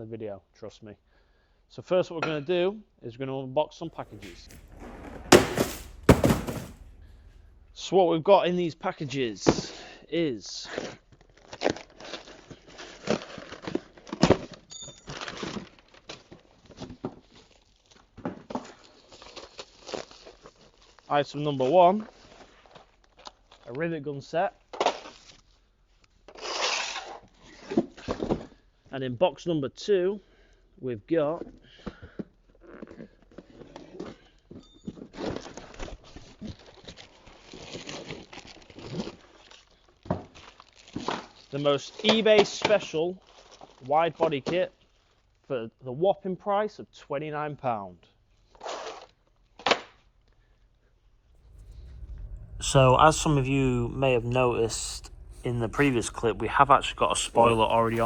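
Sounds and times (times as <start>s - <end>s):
packages knocking and thudding: 4.0s - 7.8s.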